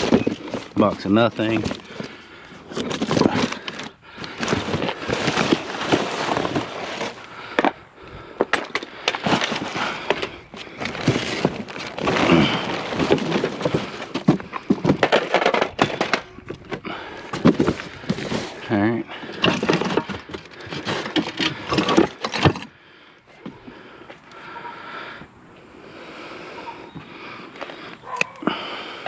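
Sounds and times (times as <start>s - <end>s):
junk clattering and knocking: 8.4s - 18.5s, 19.2s - 22.7s.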